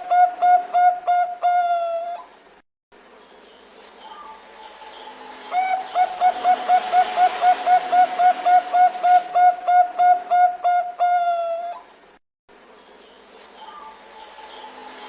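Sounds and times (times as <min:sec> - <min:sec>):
dove cooing: 0:00.0 - 0:02.3, 0:05.5 - 0:11.9.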